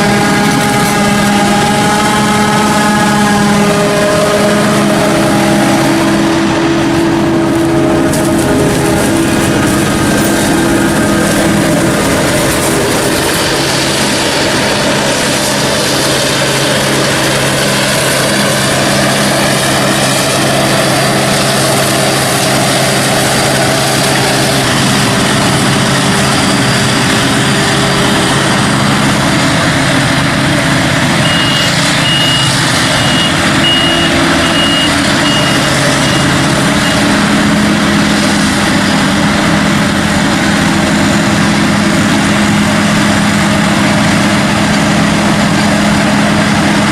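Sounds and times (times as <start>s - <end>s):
heavy machinery engines running: 0.0s - 46.9s
reversing alarm beeping: 31.0s - 37.5s.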